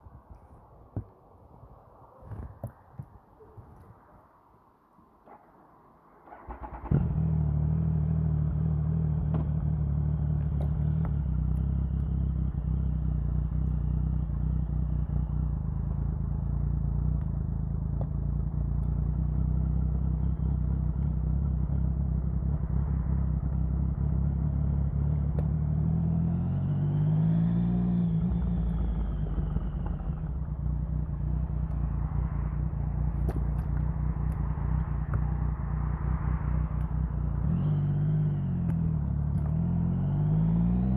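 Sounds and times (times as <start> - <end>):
motorcycle engine starting and idling: 6.2 - 40.9.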